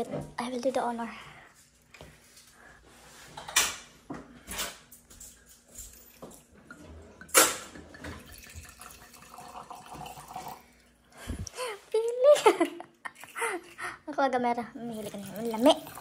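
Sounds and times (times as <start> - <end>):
wine pouring into glass: 7.2 - 10.8.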